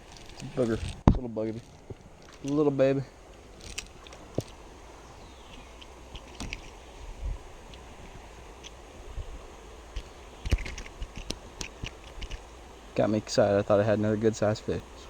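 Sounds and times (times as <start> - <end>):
creek water rushing: 0.0 - 15.0
knocks and clicks from handling gear: 3.5 - 4.6, 5.4 - 6.9, 9.9 - 12.5.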